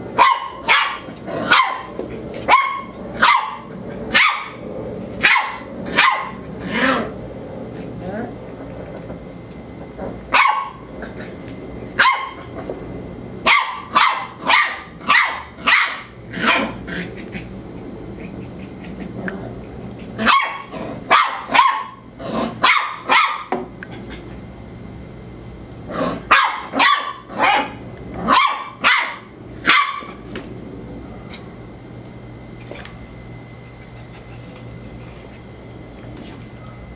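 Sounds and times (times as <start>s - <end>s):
dog barking sharply: 0.2s - 1.9s, 2.5s - 4.6s, 5.2s - 6.4s, 10.3s - 10.8s, 13.5s - 16.7s, 20.3s - 22.0s, 22.6s - 23.6s, 26.3s - 30.2s.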